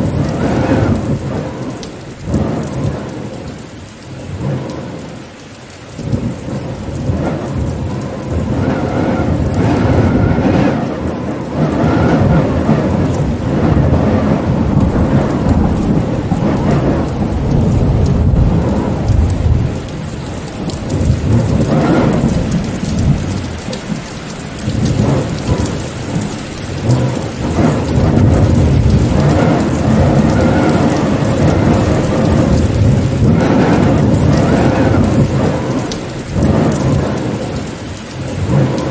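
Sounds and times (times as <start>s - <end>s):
heavy rain falling: 0.0s - 38.9s
deep rumble: 6.0s - 24.0s, 24.6s - 37.6s.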